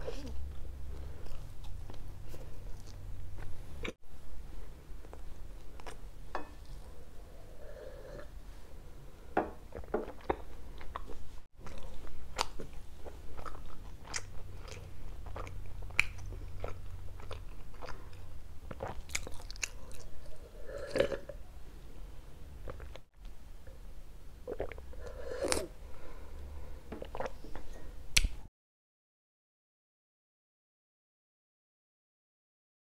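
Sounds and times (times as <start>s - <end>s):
person chewing with wet smacks: 9.7s - 20.4s, 27.0s - 28.3s
person sipping from a glass: 24.5s - 25.8s.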